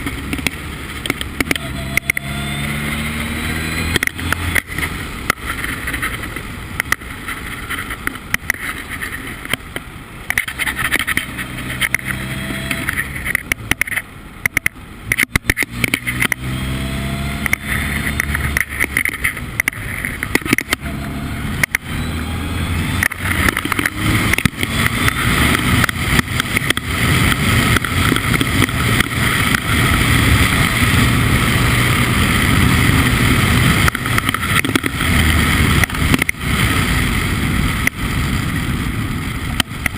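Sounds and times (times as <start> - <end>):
sharp knocks and buffets: 0.0 - 36.9
race car engine running hard: 0.0 - 39.9.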